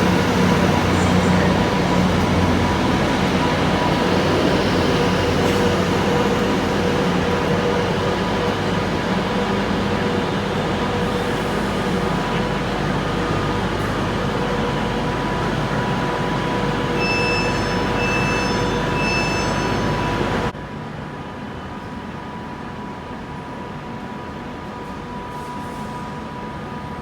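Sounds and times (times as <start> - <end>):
train rumbling: 0.0 - 27.0
short high beeps: 17.0 - 20.2.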